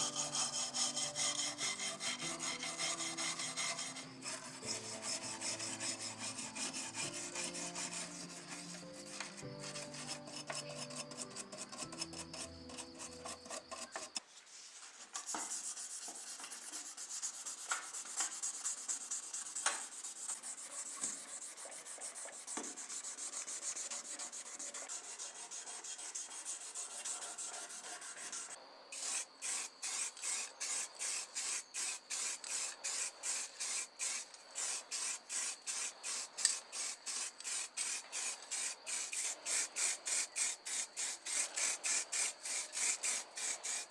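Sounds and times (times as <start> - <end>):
hand sanding a model: 0.0 - 43.9.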